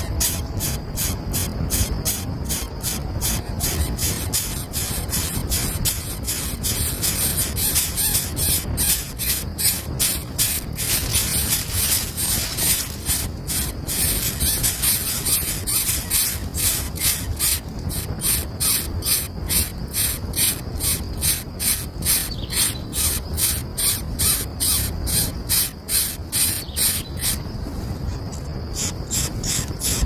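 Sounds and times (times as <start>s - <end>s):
nestling birds begging calls: 21.3s - 27.4s.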